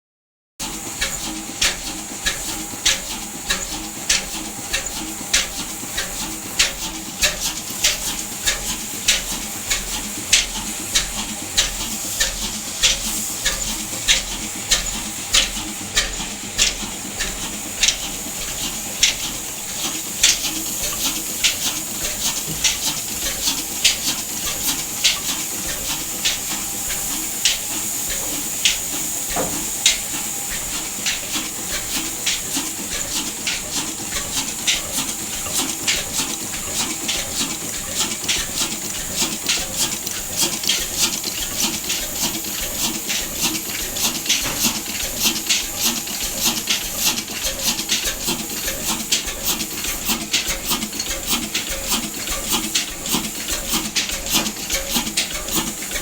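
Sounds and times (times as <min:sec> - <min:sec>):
large diesel engine running: 0:00.8 - 0:56.0
sharp knocks: 0:29.4 - 0:29.6.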